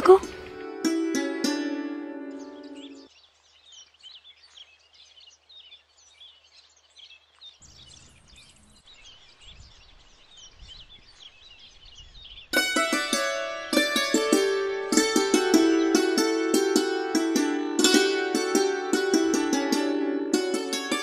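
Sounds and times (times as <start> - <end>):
plucked-string music: 0.0 - 3.1, 12.6 - 21.0
small birds chirping: 0.0 - 13.1.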